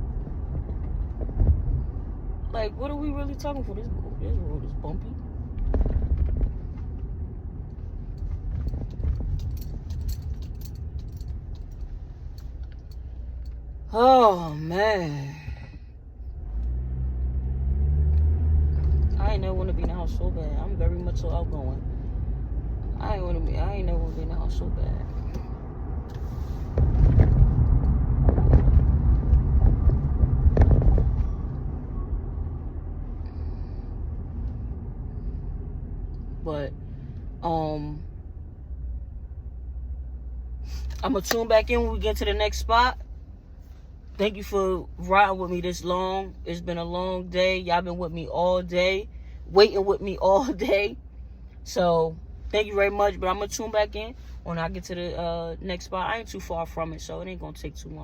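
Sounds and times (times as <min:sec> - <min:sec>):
car rumbling over bumpy road: 0:00.0 - 0:14.0, 0:15.4 - 0:47.0
car knocks and jolts: 0:05.5 - 0:07.0, 0:26.7 - 0:31.6.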